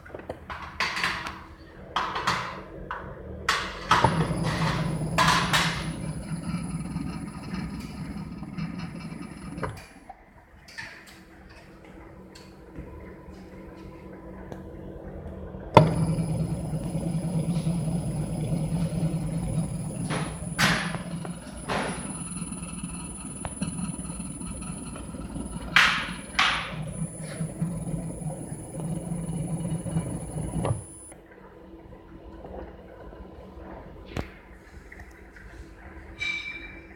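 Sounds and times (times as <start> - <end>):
electric motor humming and whining: 4.1 - 10.0, 15.8 - 31.1.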